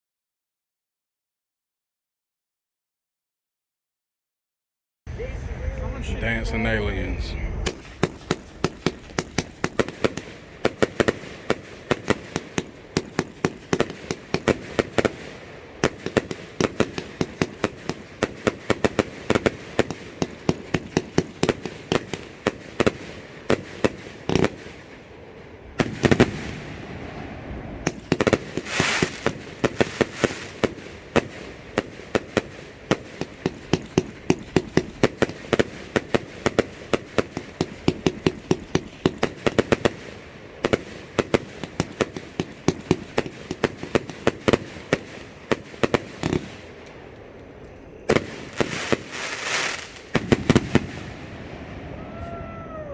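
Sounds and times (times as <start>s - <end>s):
firework cake popping and banging: 7.6s - 24.8s, 27.8s - 46.5s.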